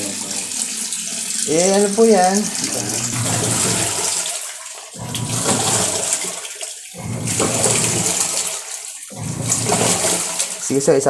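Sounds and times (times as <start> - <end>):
washing machine motor churning: 0.0 - 11.0
water sloshing: 0.0 - 11.0.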